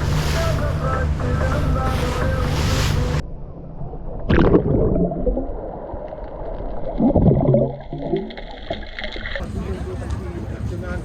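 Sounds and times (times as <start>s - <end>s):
sea noise: 0.0s - 9.8s
water gurgling: 1.1s - 9.4s.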